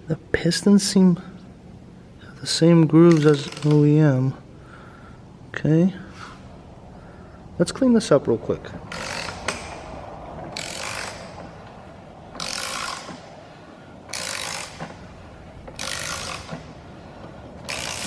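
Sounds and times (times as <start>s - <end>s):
aerosol spray hissing: 17.7s - 18.0s.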